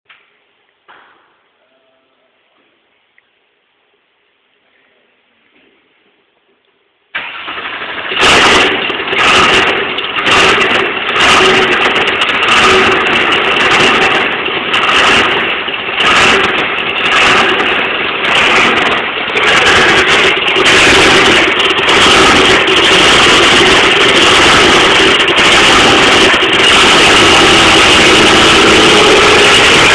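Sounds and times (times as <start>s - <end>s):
starter motor cranking: 7.2s - 29.9s
race car engine idling unevenly: 7.3s - 29.9s.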